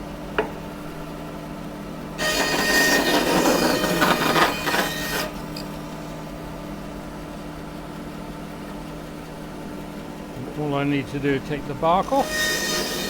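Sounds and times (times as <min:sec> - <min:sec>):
bandsaw cutting wood: 0:02.2 - 0:05.8, 0:11.6 - 0:13.0
saw motor humming: 0:02.2 - 0:06.4, 0:10.3 - 0:13.0.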